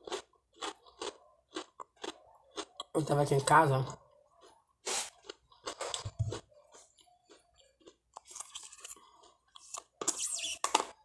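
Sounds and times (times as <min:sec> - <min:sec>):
crunchy toast being chewed: 0:00.0 - 0:03.0, 0:04.2 - 0:11.0.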